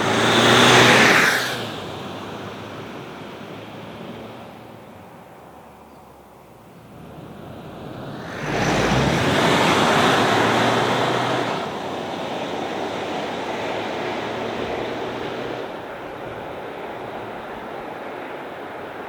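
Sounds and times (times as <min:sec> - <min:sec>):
low engine hum: 0:06.4 - 0:17.8.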